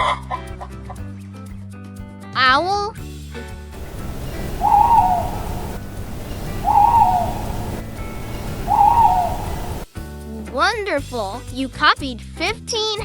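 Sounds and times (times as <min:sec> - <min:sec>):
owl hooting: 0:03.8 - 0:09.9.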